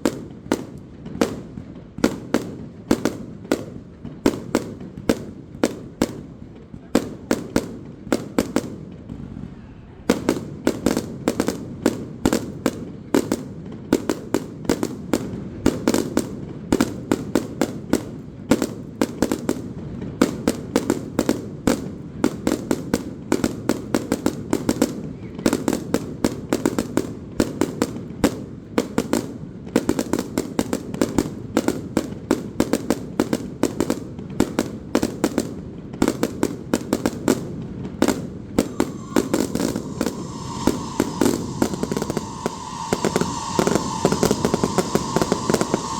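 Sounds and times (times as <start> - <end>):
fireworks bursting: 0.0 - 45.9.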